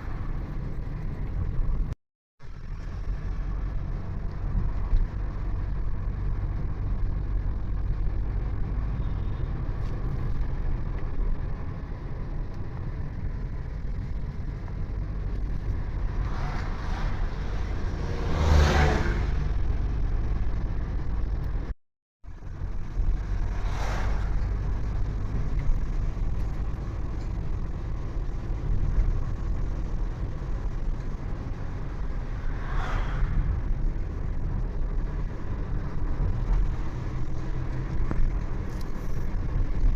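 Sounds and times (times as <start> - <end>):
vehicle engine and road rumble: 0.0 - 39.9
vehicles passing by: 0.0 - 39.9.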